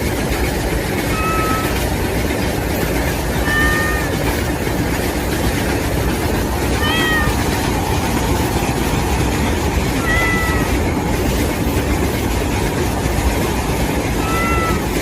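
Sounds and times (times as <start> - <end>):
steady loud noise: 0.0 - 15.0
kitten meowing: 1.1 - 1.8, 3.4 - 4.2, 6.8 - 7.6, 10.0 - 10.8, 14.2 - 15.0.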